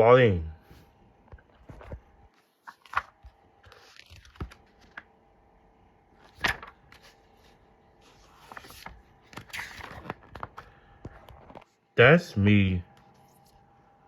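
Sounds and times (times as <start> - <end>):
paper pages rustling: 1.3 - 5.1, 6.2 - 11.8.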